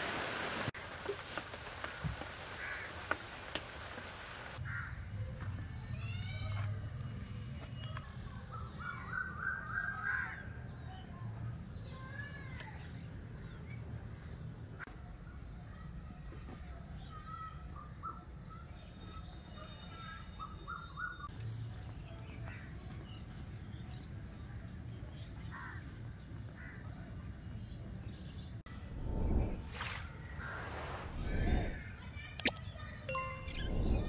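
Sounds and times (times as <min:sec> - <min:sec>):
birds calling and chirping: 0:16.5 - 0:34.0.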